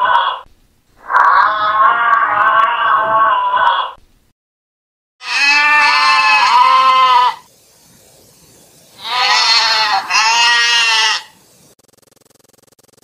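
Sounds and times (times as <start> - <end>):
goat bleating: 1.2 - 4.0, 5.2 - 7.5, 9.0 - 11.4.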